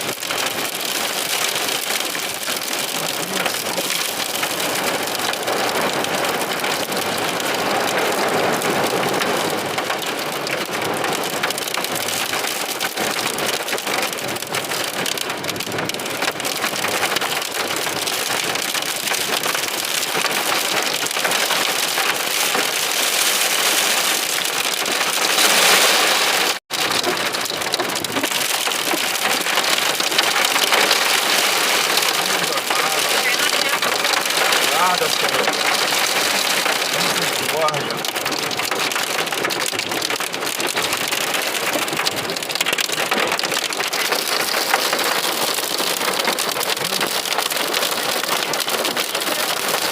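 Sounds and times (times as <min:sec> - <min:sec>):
heavy rain pelting down: 0:00.0 - 0:49.9.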